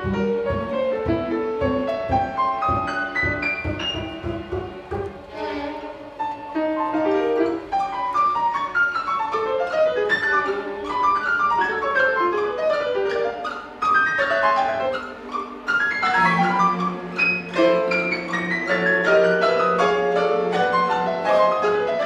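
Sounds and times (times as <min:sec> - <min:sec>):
piano and string orchestra: 0:00.0 - 0:22.0.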